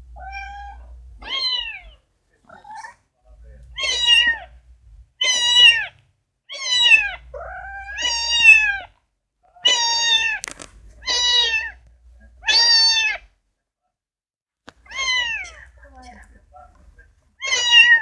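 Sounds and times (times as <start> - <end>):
cat meowing: 0.2 - 2.0, 3.7 - 4.6, 5.2 - 8.9, 9.6 - 11.8, 12.4 - 13.3, 14.8 - 16.1, 17.4 - 18.0.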